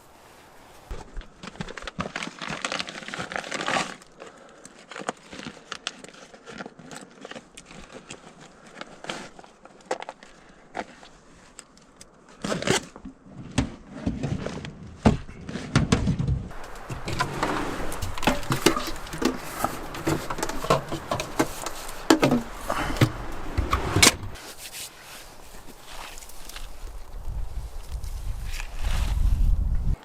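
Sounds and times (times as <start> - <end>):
camp gear rustling: 0.0 - 15.7, 16.5 - 30.0
sharp clicks and knocks: 16.5 - 24.4.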